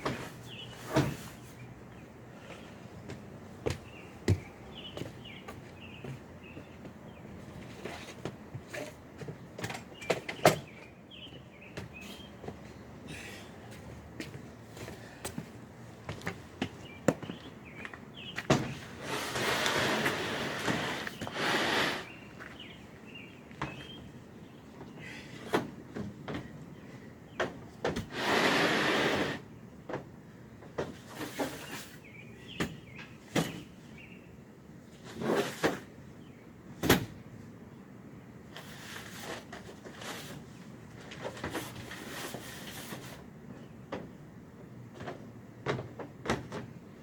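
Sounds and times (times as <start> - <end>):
scraping or rustling: 18.9 - 22.2, 38.5 - 43.3.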